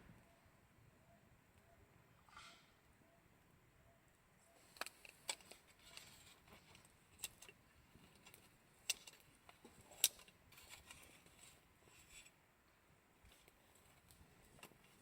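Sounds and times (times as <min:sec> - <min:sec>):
campfire wood crackling: 0:04.6 - 0:15.0.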